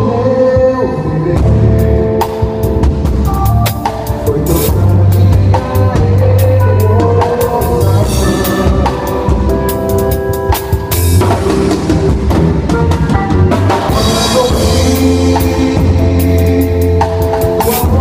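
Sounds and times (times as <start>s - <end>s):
drum kit beating: 0.0s - 18.0s
low bass notes: 0.0s - 18.0s
held chords: 1.4s - 18.0s.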